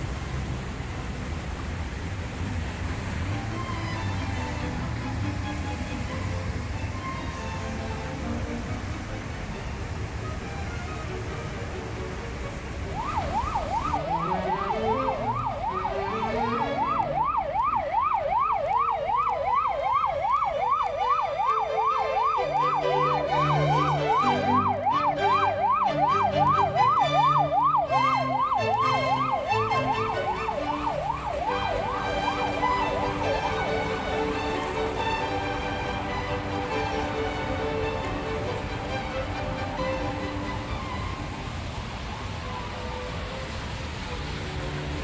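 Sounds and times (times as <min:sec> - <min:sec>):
background music: 0:03.0 - 0:45.0
emergency siren yelping: 0:12.8 - 0:40.8.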